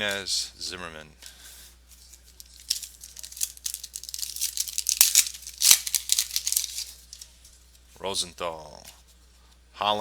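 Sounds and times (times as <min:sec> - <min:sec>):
foil wrapper tearing and crinkling: 0:02.4 - 0:07.2.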